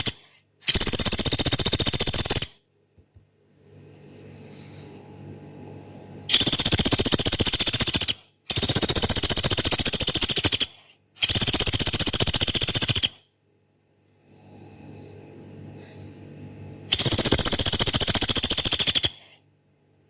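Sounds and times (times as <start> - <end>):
woodpecker rapid trills: 0.0 - 2.5, 6.3 - 13.2, 16.9 - 19.3.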